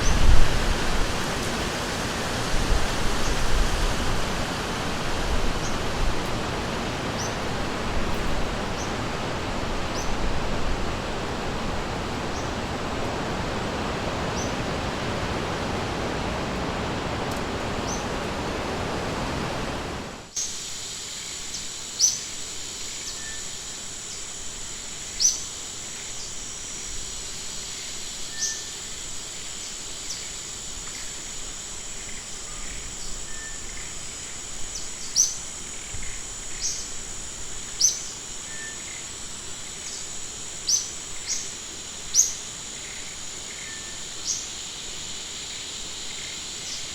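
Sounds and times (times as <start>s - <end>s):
rushing river water: 0.0s - 20.3s
high insect drone: 0.0s - 46.9s.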